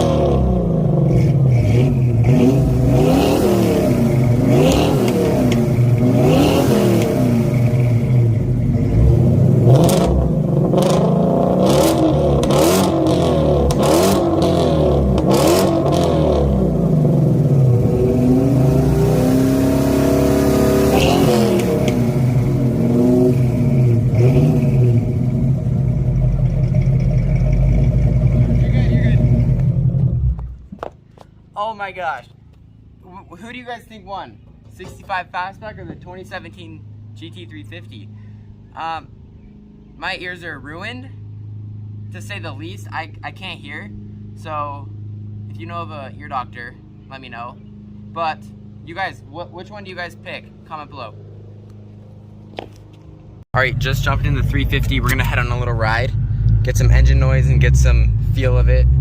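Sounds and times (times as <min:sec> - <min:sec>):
car engines revving hard: 0:00.0 - 0:30.7, 0:49.8 - 0:59.0.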